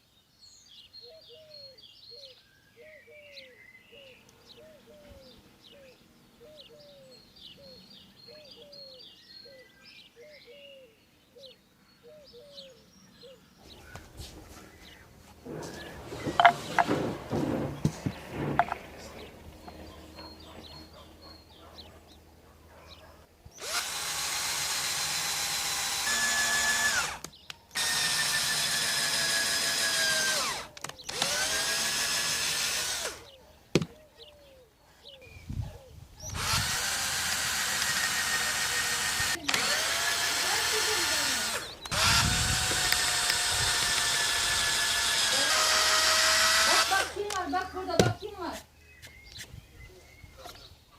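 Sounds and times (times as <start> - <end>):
electric drill drilling wood: 15.4 - 17.6, 23.5 - 33.3, 36.3 - 47.4
knocks: 15.4 - 19.0.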